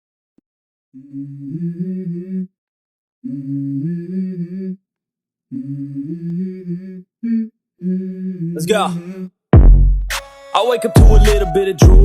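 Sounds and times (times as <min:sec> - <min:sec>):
person humming a melody: 0:01.0 - 0:02.6, 0:03.2 - 0:04.8, 0:05.5 - 0:09.3, 0:10.9 - 0:12.0.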